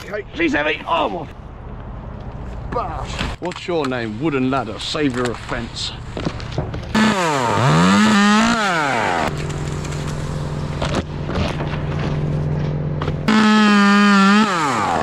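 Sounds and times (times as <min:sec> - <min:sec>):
chainsaw revving and idling: 0:06.9 - 0:11.5, 0:13.2 - 0:15.0.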